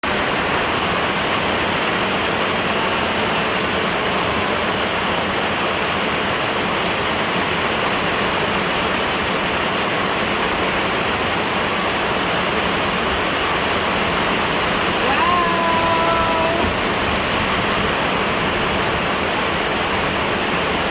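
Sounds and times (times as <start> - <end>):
heavy rain: 9.1 - 20.9.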